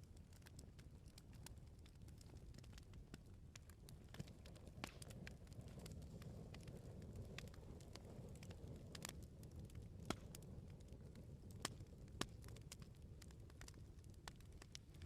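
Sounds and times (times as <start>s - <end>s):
campfire crackling: 0.0s - 15.0s
low rumble of flames: 0.0s - 15.0s.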